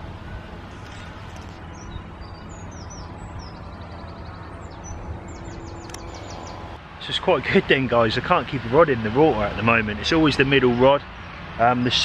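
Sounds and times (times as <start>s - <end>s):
low outdoor rumble: 0.0s - 12.0s
small birds chirping: 0.8s - 6.8s.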